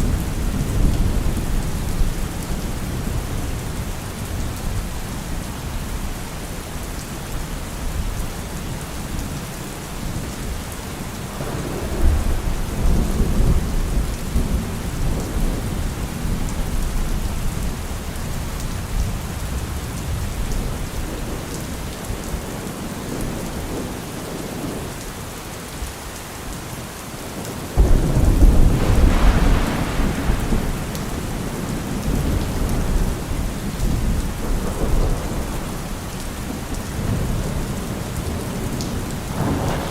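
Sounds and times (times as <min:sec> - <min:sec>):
heavy rain falling: 0:00.0 - 0:39.9
thunder rumbling: 0:11.3 - 0:17.6, 0:27.8 - 0:39.9
thunder clap: 0:11.4 - 0:15.8, 0:27.8 - 0:35.8, 0:39.3 - 0:39.9.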